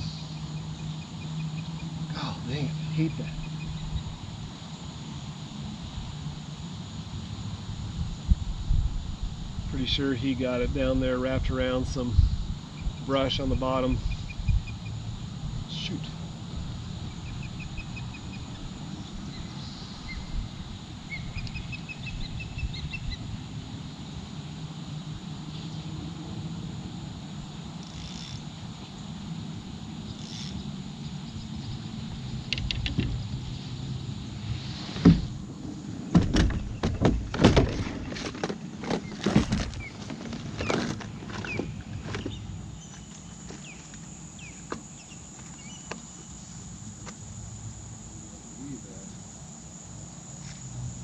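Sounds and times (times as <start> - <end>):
small birds chirping: 0.0 - 4.7, 12.1 - 23.8, 39.0 - 46.6
river low rumble: 0.0 - 49.0
gear knocking and clunking: 36.1 - 42.5.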